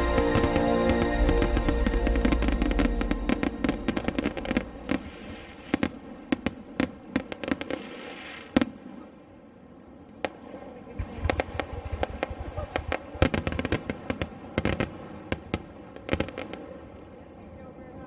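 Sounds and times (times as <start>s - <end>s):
music: 0.0s - 5.4s
fireworks crackling and popping: 0.0s - 9.1s, 10.2s - 16.8s.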